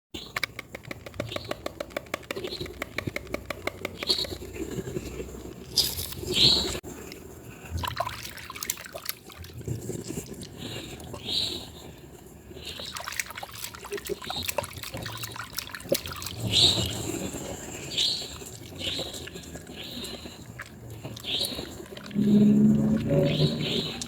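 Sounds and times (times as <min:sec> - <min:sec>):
hands lathering wet soap: 0:12.7 - 0:17.4.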